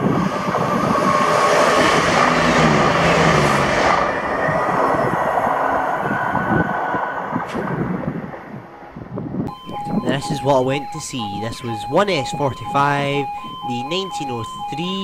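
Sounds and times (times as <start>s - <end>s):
diesel train passing at speed: 0.0s - 9.4s.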